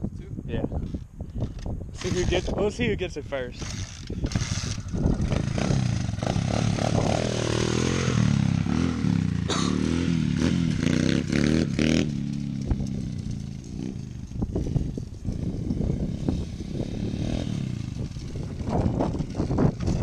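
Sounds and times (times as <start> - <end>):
motorbike engine revving hard: 3.6 - 20.0.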